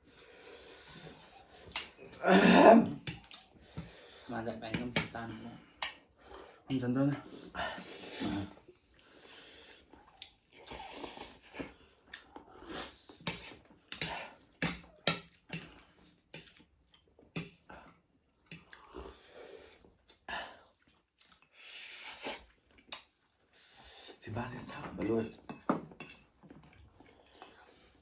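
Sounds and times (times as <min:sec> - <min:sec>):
chewing: 0:03.0 - 0:03.5, 0:09.8 - 0:21.6, 0:22.2 - 0:23.4, 0:26.0 - 0:28.0
cutlery clinking on dishes: 0:24.8 - 0:26.4.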